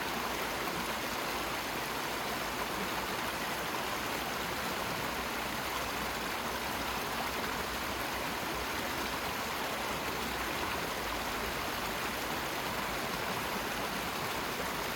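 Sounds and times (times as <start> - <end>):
rushing water: 0.0 - 14.9.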